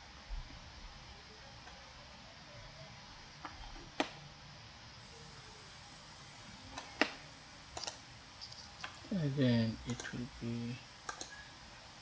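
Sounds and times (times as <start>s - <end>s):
faint steady hiss: 0.0s - 12.0s
computer mouse clicking: 3.4s - 4.2s, 6.7s - 9.1s, 9.9s - 10.2s, 11.0s - 11.4s.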